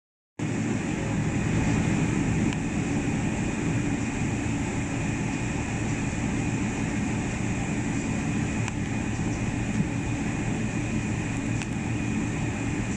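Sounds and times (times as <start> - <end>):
jet engines droning: 0.4 - 12.9.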